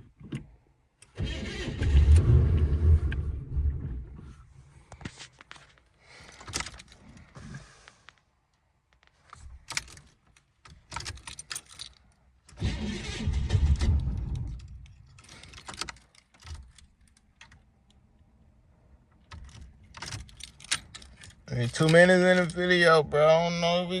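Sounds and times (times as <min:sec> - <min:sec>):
car engine cranking: 0:01.0 - 0:04.2, 0:10.7 - 0:17.7
keys jangling in ignition: 0:09.6 - 0:12.6, 0:14.4 - 0:17.6, 0:19.3 - 0:22.8.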